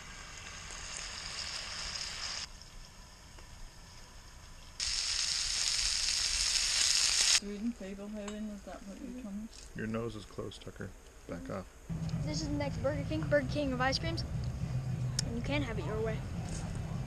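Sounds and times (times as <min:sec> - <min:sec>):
sausages sizzling in a skillet: 0:00.0 - 0:02.5, 0:04.8 - 0:07.4.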